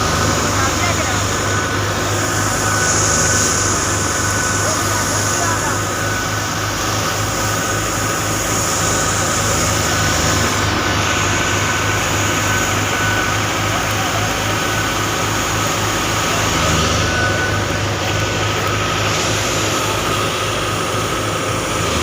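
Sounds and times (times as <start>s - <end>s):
high-pitched whine: 0.0s - 22.0s
machinery engine hum: 0.0s - 22.0s.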